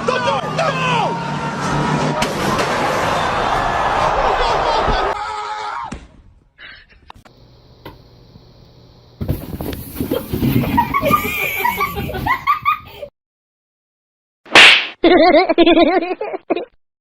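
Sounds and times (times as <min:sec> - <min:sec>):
giggling laughter: 0:10.2 - 0:13.1, 0:15.0 - 0:16.8.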